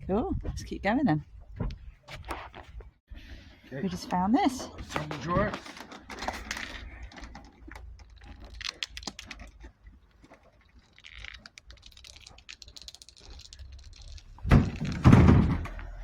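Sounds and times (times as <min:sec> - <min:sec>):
clicks and rattling knocks: 0:11.0 - 0:15.8.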